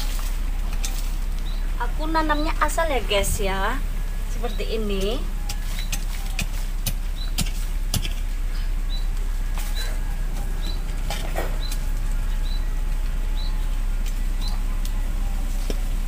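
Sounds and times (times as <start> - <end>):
steady low rumble: 0.0 - 16.0
bird high chirp: 0.8 - 3.4, 4.1 - 6.4, 7.1 - 7.5, 8.5 - 15.6.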